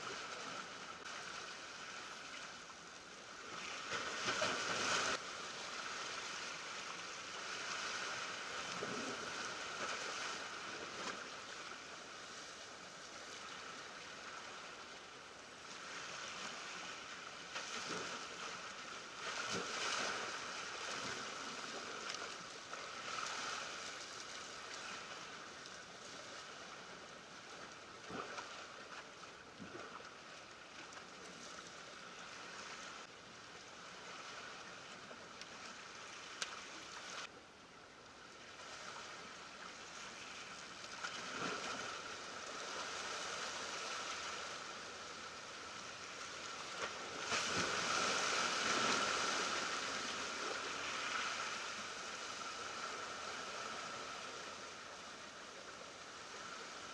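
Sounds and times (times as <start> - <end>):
faint clicks: 36.4 - 36.6.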